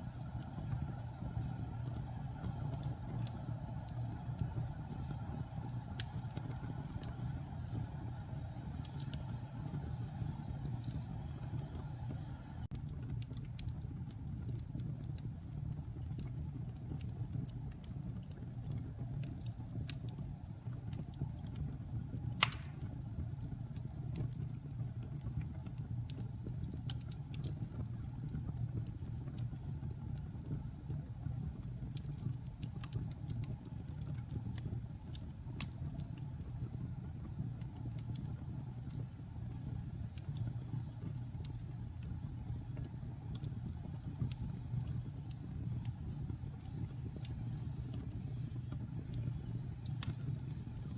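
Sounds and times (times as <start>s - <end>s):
wood fire crackling: 0.0s - 50.9s
loud pop from fire: 22.4s - 23.0s.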